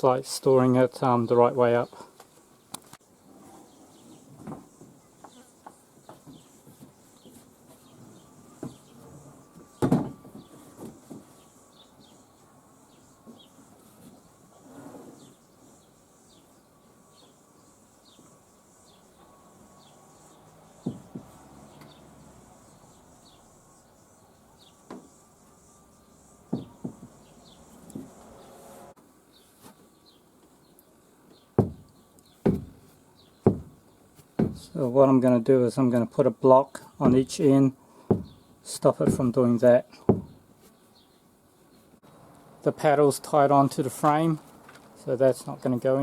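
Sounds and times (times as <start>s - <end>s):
kayak knocking on timber rack: 31.6s - 31.9s, 32.5s - 32.8s, 33.5s - 33.8s, 34.4s - 34.7s, 37.0s - 37.4s, 38.1s - 38.5s, 39.1s - 39.4s, 40.1s - 40.4s.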